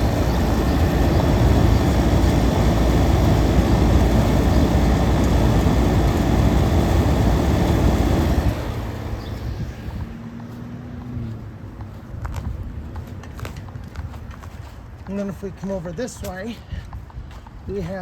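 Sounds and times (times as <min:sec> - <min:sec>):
air conditioner fan humming: 0:00.0 - 0:10.0.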